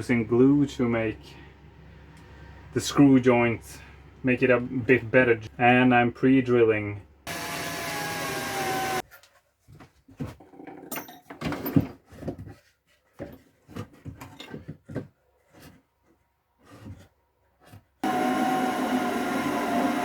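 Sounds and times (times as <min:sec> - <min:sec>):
electric drill running: 0:07.3 - 0:09.0, 0:18.0 - 0:20.0.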